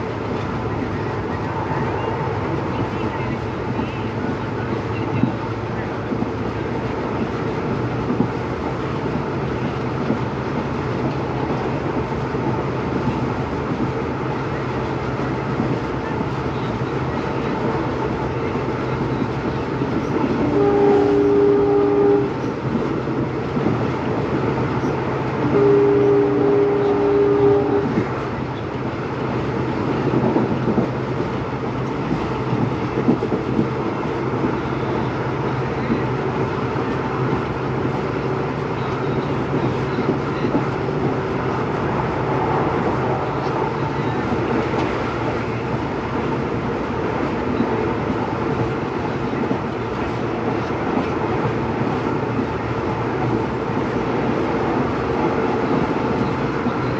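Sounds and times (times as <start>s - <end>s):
diesel locomotive engine humming: 0.0s - 56.9s
two-note locomotive horn: 20.3s - 22.6s, 25.4s - 28.2s.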